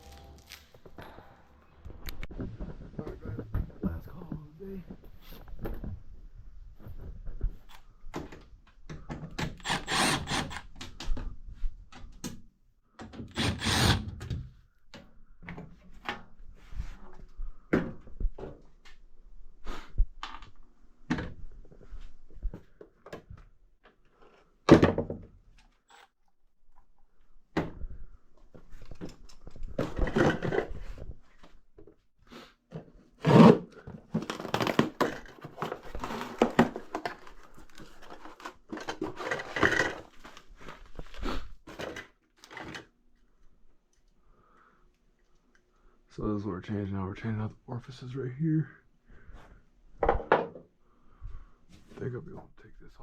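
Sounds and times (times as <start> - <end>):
objects knocking and clunking: 0.8 - 4.0, 4.9 - 9.6, 20.2 - 25.7, 27.5 - 32.0, 32.7 - 41.0, 50.0 - 50.8
scraping and rustling of objects: 28.4 - 43.3.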